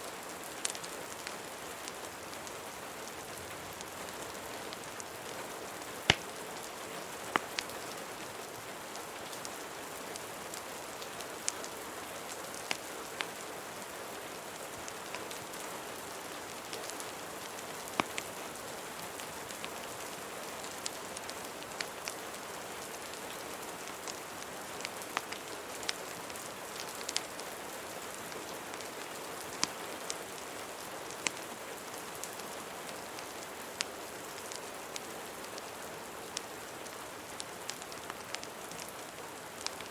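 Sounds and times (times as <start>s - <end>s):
rain hiss: 0.0s - 39.9s
wood fire crackling: 0.2s - 39.9s.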